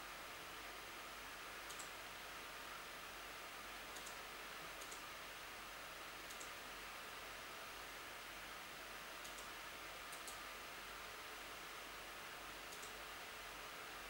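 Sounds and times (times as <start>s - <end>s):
low hiss: 0.0s - 14.0s
faint double clicks: 1.7s - 2.0s, 3.9s - 4.2s, 6.3s - 6.6s, 9.2s - 9.5s, 10.1s - 10.4s, 12.7s - 13.0s.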